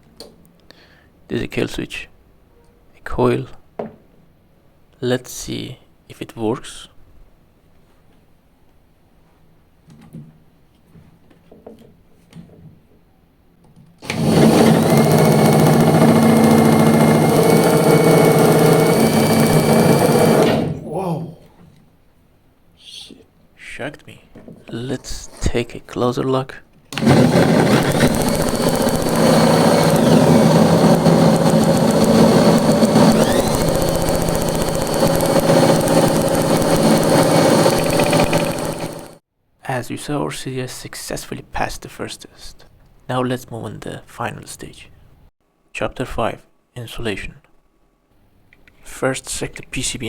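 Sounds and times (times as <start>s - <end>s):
motor running with high whine: 14.0s - 20.7s, 27.0s - 39.2s
fast ticking of sparks: 27.0s - 39.2s.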